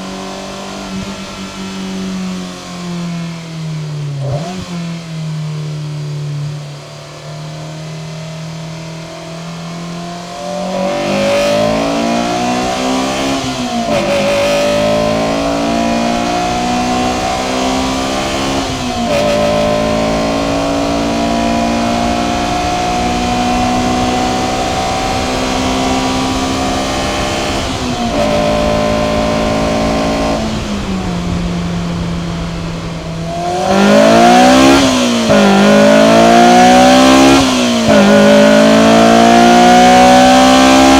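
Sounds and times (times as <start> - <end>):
car engine accelerating through gears: 0.0 - 40.9.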